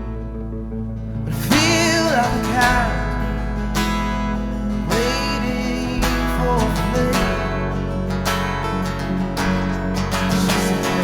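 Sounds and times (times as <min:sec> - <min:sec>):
strummed acoustic guitar: 0:00.0 - 0:11.0
band playing pop-rock song: 0:01.5 - 0:08.6.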